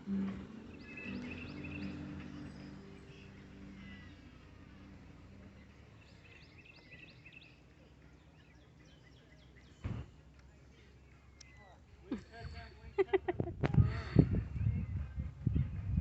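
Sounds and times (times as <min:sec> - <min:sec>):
background music: 0:00.0 - 0:06.0
faint birds chirping: 0:00.0 - 0:16.0
low background hum: 0:00.0 - 0:16.0.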